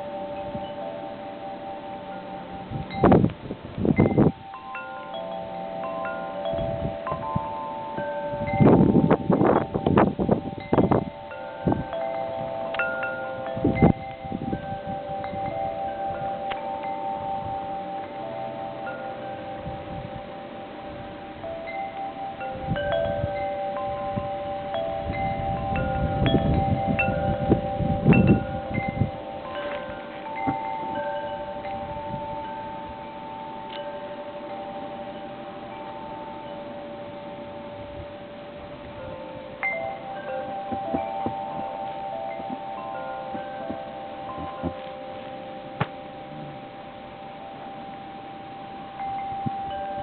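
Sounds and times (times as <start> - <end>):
wind chimes ringing: 0.0 - 50.0
wind buffeting microphone: 2.4 - 4.6, 5.4 - 18.0, 19.4 - 21.8, 22.4 - 44.9.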